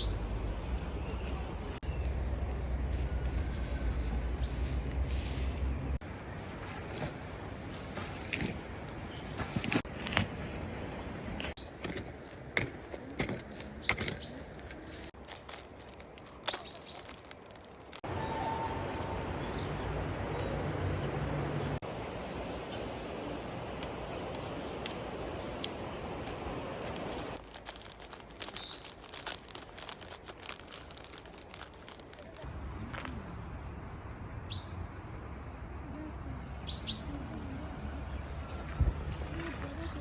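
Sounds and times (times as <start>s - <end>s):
small birds chirping: 0.0s - 2.2s, 13.6s - 18.0s, 21.2s - 32.4s
sharp clicks and crackles: 15.1s - 18.0s, 25.6s - 33.1s.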